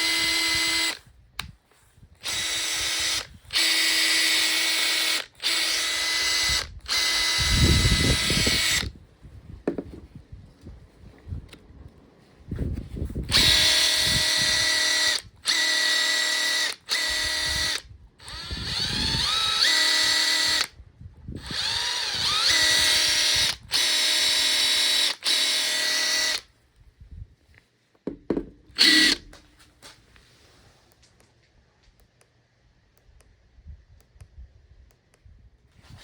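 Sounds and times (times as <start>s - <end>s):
impact driver whining: 0.0s - 1.5s, 2.2s - 9.0s, 13.2s - 20.7s, 21.4s - 26.5s, 28.1s - 29.4s.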